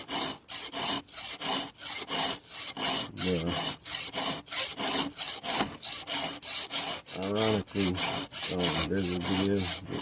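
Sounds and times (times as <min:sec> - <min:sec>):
file rasping on chainsaw chain: 0:00.0 - 0:10.0.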